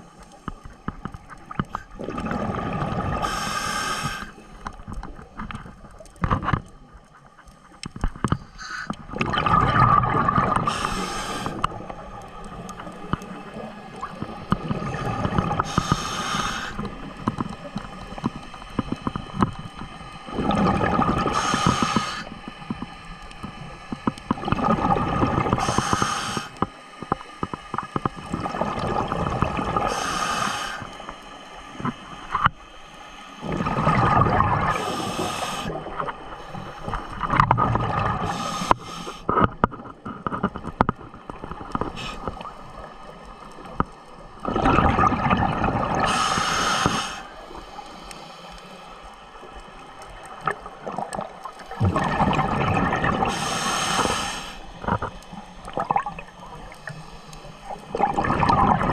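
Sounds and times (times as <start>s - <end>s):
regulator bubbling exhalation: 51.7s - 55.1s, 57.8s - 58.9s.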